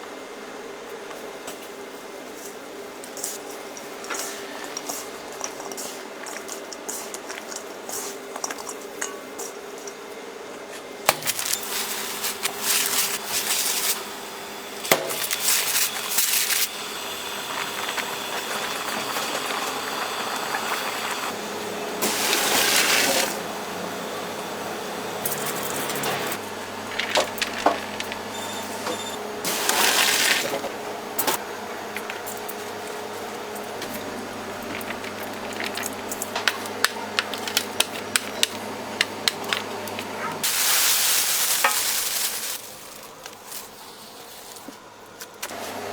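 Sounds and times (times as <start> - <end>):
utensils clicking and clinking: 3.1 - 10.0, 25.2 - 40.5.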